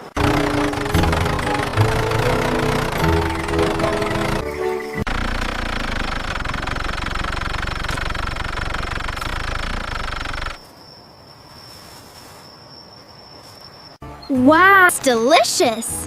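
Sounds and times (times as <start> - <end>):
engine running with fast pulse: 0.0 - 10.6.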